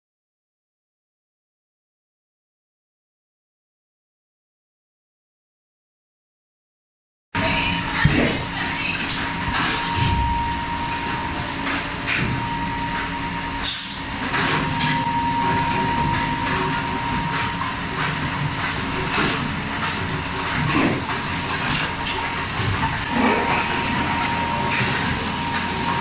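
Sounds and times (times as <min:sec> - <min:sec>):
thin constant whine: 0:07.4 - 0:26.0
machine clatter: 0:10.9 - 0:26.0.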